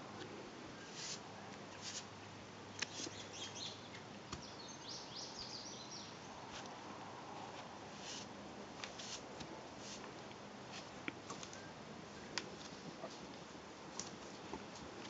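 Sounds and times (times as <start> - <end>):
small bird chirping: 2.8 - 6.2.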